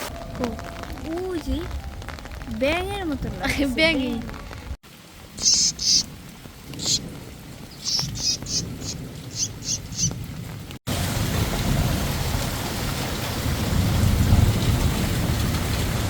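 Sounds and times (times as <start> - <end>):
low rumble: 0.0 - 4.8
steady rain: 0.0 - 16.0
frog chirping: 5.4 - 6.1, 7.8 - 10.1.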